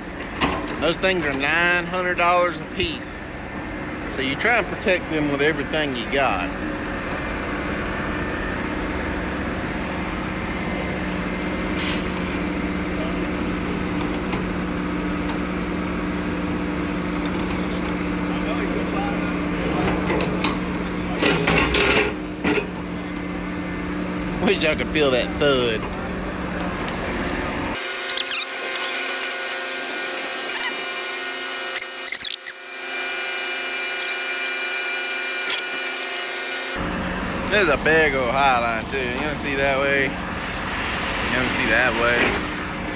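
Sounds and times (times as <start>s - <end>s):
heavy diesel engine running: 0.0s - 42.9s
machine squeaks and clanks: 11.7s - 12.4s, 17.2s - 23.0s, 26.7s - 36.9s, 37.5s - 42.9s.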